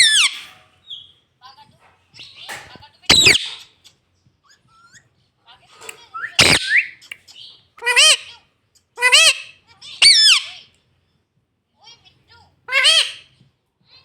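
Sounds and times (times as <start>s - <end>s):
parrot squawking: 0.0s - 1.1s, 3.1s - 3.8s, 6.2s - 7.2s, 7.8s - 8.3s, 9.0s - 10.6s, 12.7s - 13.3s.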